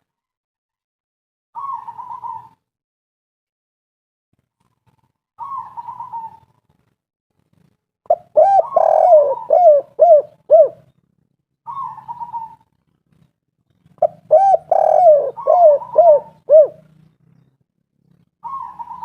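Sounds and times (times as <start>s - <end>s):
dove cooing: 1.6s - 2.6s, 5.4s - 6.5s, 8.1s - 10.9s, 11.7s - 12.7s, 14.0s - 17.0s, 18.4s - 19.0s
soft warbled bird call: 5.4s - 6.5s, 11.7s - 12.6s, 14.0s - 16.9s, 18.4s - 19.0s.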